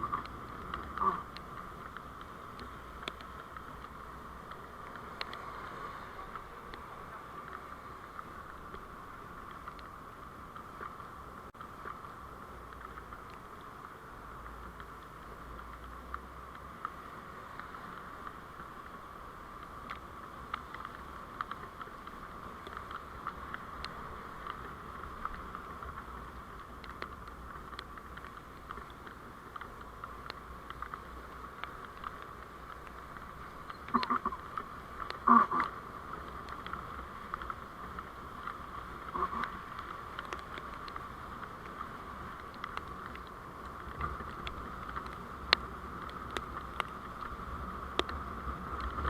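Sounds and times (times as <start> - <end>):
vehicle road noise: 0.0 - 49.0
small clicks and rattles: 11.6 - 49.0.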